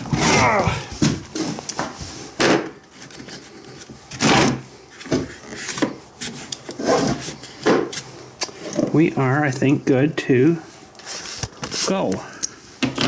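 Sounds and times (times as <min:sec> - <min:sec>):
objects scraping and knocking: 0:00.0 - 0:09.1.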